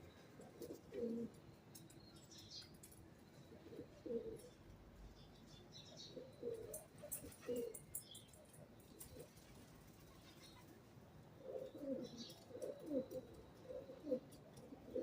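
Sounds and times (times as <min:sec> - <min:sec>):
pigeons cooing: 0:00.0 - 0:01.4, 0:03.5 - 0:04.6, 0:06.1 - 0:08.0, 0:08.8 - 0:10.8, 0:11.4 - 0:15.0
small birds chirping: 0:00.0 - 0:10.8, 0:11.4 - 0:15.0.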